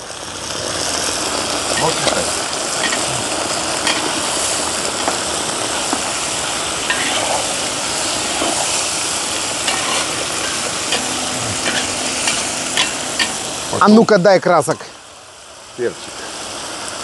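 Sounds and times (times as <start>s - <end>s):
food sizzling in a pan: 0.0s - 17.0s
metal spatula scraping a pan: 3.8s - 4.1s, 6.9s - 7.5s, 9.6s - 13.5s.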